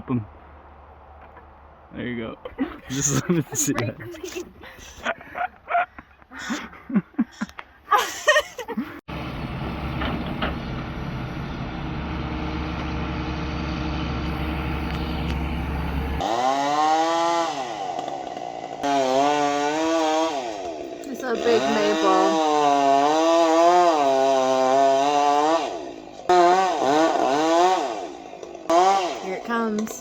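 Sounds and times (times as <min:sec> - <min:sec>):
chainsaw revving: 0:02.9 - 0:03.8, 0:14.2 - 0:30.0
engine running with deep rumble: 0:09.1 - 0:16.6.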